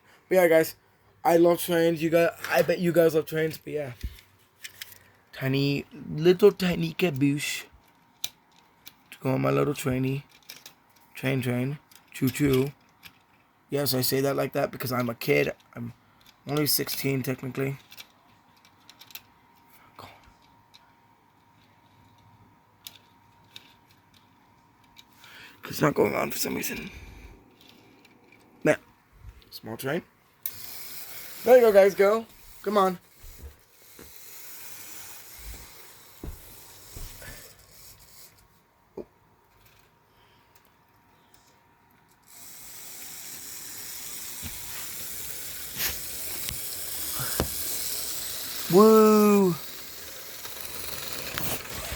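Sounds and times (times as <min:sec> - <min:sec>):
model train whirring on track: 0:30.4 - 0:38.4, 0:42.2 - 0:51.9.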